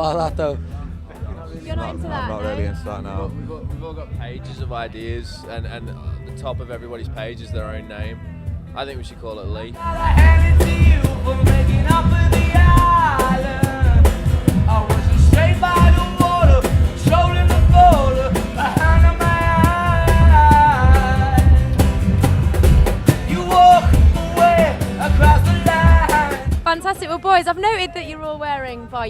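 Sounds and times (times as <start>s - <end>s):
rock song with lead vocal: 9.5s - 28.4s.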